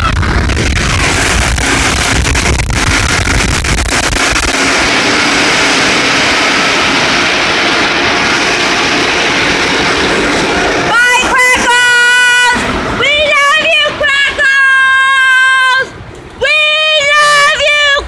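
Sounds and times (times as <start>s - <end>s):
low rumble with knocks: 0.0s - 10.9s
rushing noise inside a car: 0.0s - 13.8s.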